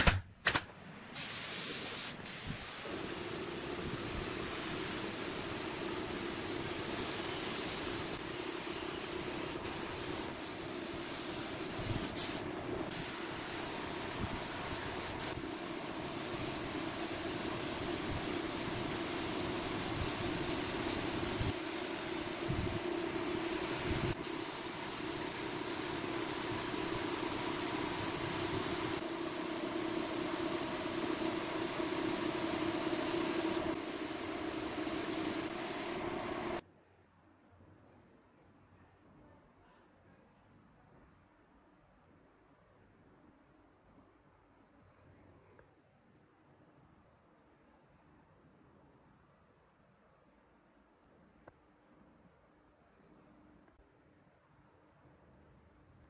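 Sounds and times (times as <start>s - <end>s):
steady mechanical hiss: 1.1s - 36.6s.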